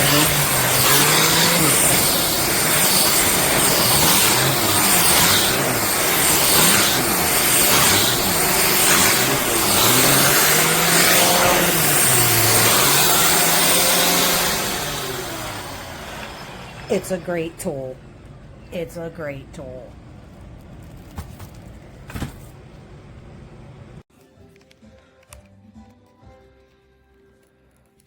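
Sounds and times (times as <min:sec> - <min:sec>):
vacuum cleaner whirring: 0:00.0 - 0:18.7.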